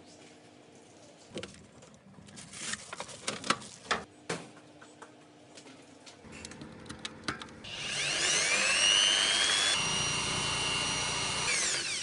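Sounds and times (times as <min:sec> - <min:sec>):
small electric motor whine: 0:07.6 - 0:12.0.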